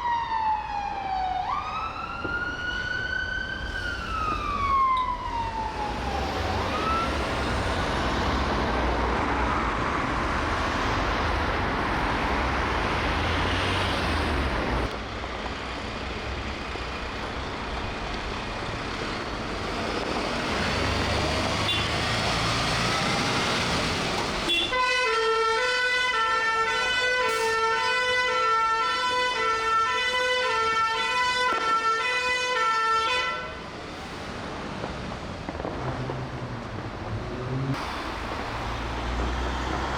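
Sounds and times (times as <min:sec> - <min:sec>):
two-tone siren: 0:00.0 - 0:07.6, 0:24.5 - 0:33.6
wailing siren: 0:00.0 - 0:08.6, 0:24.7 - 0:33.8
engine and traffic noise: 0:00.0 - 0:39.9.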